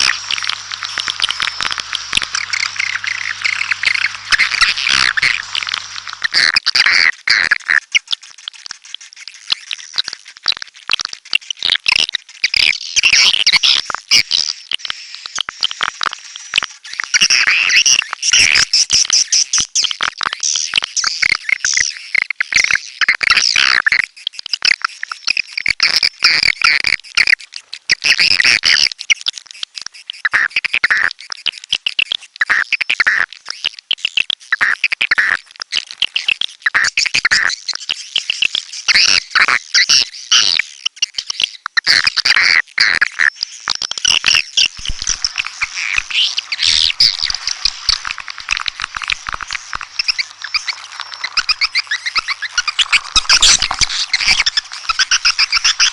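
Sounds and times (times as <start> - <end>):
swiftlets chirping and trilling: 0.0 - 6.4, 44.4 - 55.9.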